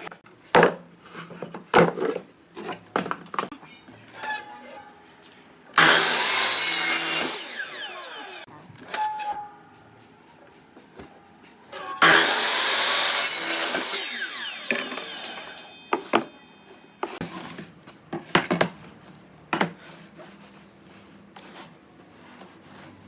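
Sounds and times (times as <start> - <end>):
power saw cutting wood: 5.8 - 8.5, 12.0 - 16.1
saw blade spinning down: 5.8 - 8.5, 12.0 - 15.8.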